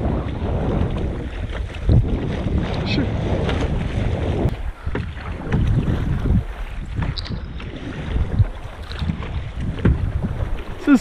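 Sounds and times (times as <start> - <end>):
water splashing around kayak: 0.0 - 11.0
wind buffeting microphone: 0.0 - 11.0.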